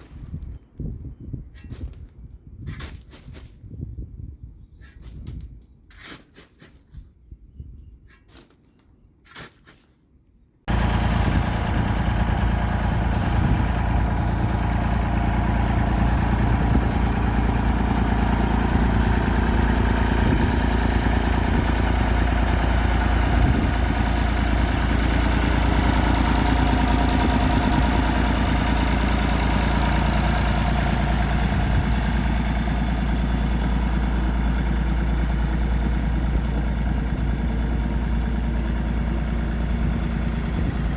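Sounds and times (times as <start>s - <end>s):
engine idling: 10.7s - 40.9s.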